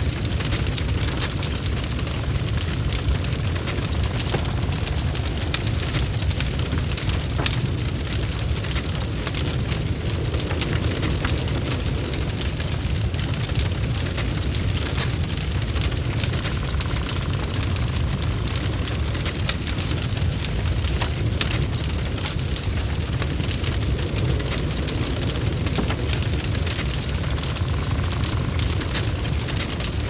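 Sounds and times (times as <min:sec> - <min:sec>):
burning wood crackling and popping: 0:00.0 - 0:30.0
low roar of flames: 0:00.0 - 0:30.0.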